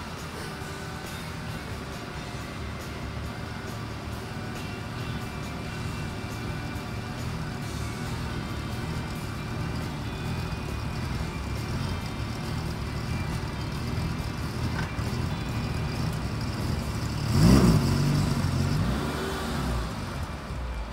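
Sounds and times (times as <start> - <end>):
car engine at low revs: 0.0 - 20.9
sharp engine rev: 2.3 - 20.4.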